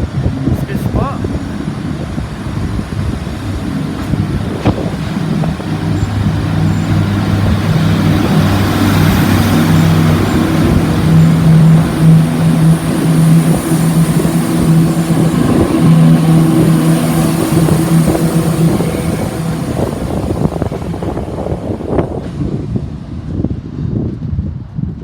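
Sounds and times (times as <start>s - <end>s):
diesel train engine running: 0.0s - 25.0s.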